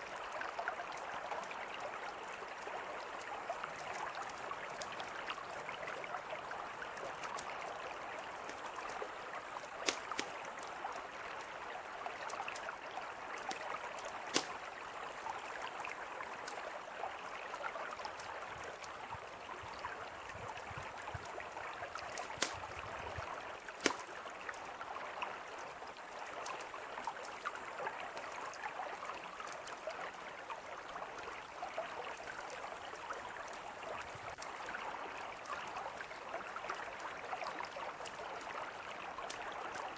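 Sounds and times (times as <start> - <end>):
campfire crackling and popping: 9.6 - 11.0, 13.5 - 14.8, 22.1 - 22.8, 23.7 - 24.6.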